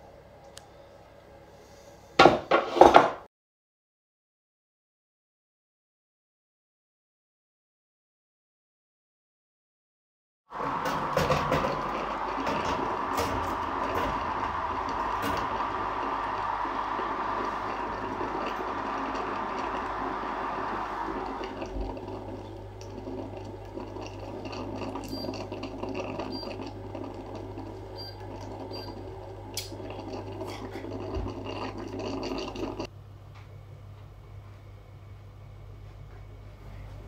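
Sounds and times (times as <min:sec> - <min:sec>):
food mixer running: 0:10.5 - 0:32.9.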